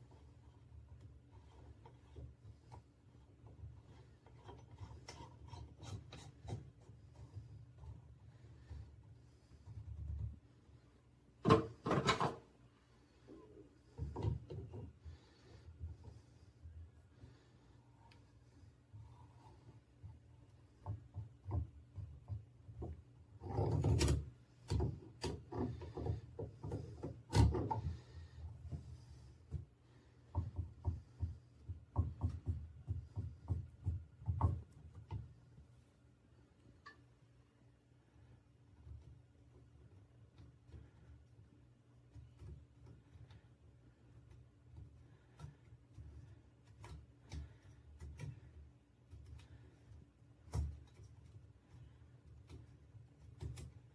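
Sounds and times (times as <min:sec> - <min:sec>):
dull knocks and thumps: 0:20.0 - 0:35.4.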